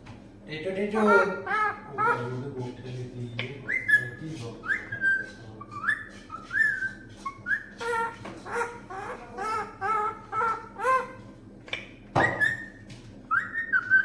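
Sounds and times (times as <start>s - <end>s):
parrot voice-like chatter: 0.9s - 2.8s, 7.3s - 11.3s
parrot whistling: 1.0s - 2.4s, 3.6s - 11.2s, 12.2s - 14.0s.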